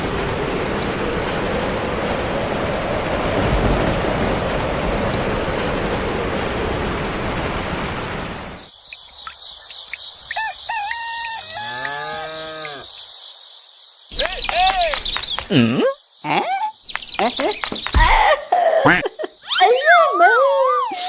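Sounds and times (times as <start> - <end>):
heavy rain: 0.0 - 8.7, 14.1 - 15.5
high insect chirr: 8.4 - 21.0
rooster crowing: 10.4 - 12.8.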